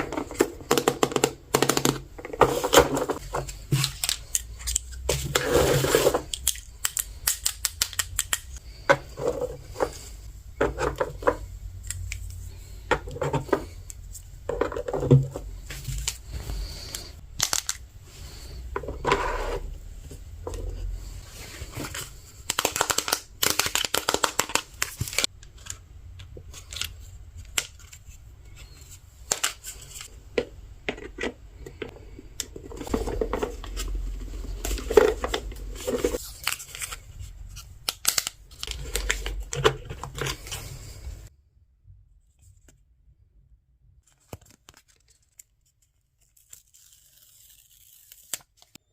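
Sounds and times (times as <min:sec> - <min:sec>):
plastic parts clicking and tapping: 0:00.0 - 0:05.4, 0:06.2 - 0:09.4
plastic packaging crinkling: 0:15.8 - 0:17.8.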